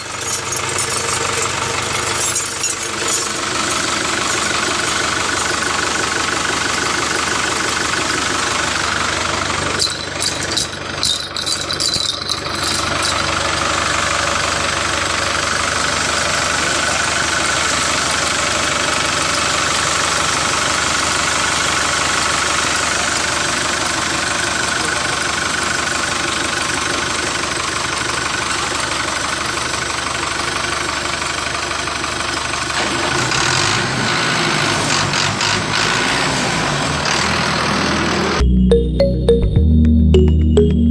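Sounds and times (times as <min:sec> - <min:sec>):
engine running steadily: 0:00.0 - 0:33.7.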